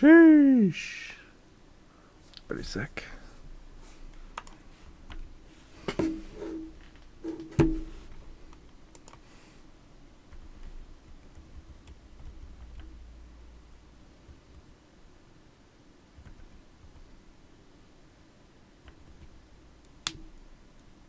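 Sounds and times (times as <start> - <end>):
keyboard typing clicks: 4.4 - 5.3, 8.6 - 9.2
louder knocks: 5.9 - 8.0.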